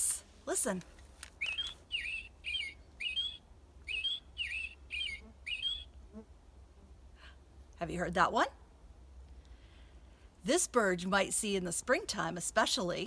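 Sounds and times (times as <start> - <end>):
robin singing: 1.4 - 5.9.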